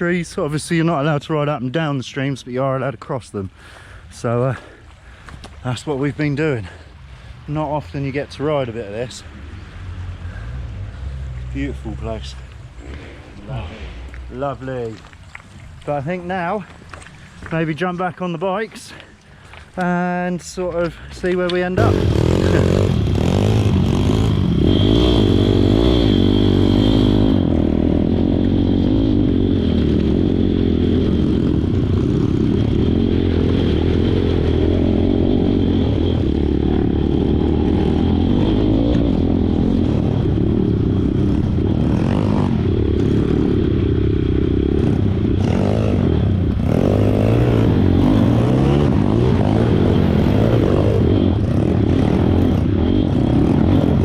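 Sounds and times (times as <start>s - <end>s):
pit bike engine running: 21.8s - 54.0s.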